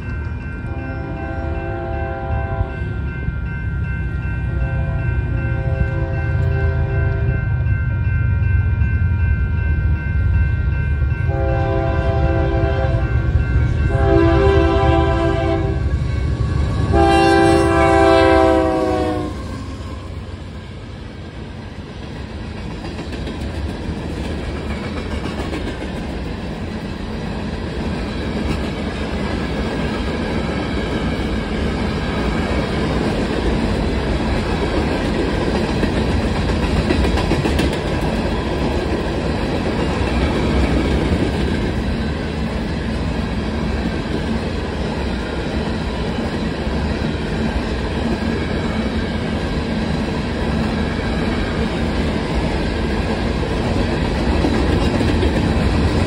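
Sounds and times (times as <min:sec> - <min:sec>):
locomotive air horn blasts: 0:00.7 - 0:02.8, 0:04.5 - 0:07.3, 0:11.3 - 0:13.1, 0:13.9 - 0:15.9, 0:16.8 - 0:19.7.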